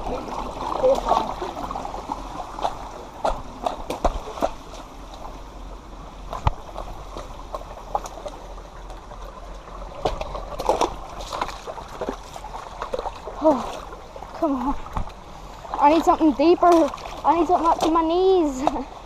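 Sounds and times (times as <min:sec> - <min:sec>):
footsteps splashing in creek: 0:00.0 - 0:04.9, 0:10.0 - 0:14.0, 0:14.9 - 0:18.8
creek water running over rocks: 0:00.0 - 0:19.0.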